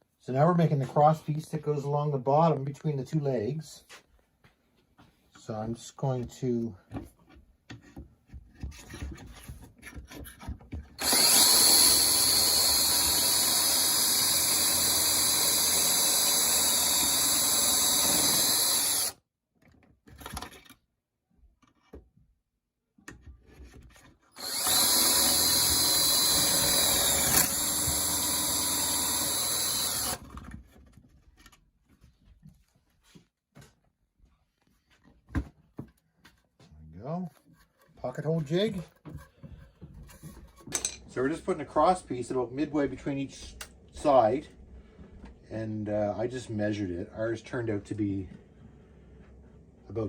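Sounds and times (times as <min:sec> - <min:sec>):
cordless drill boring into wood: 0:11.0 - 0:19.2, 0:24.3 - 0:30.4.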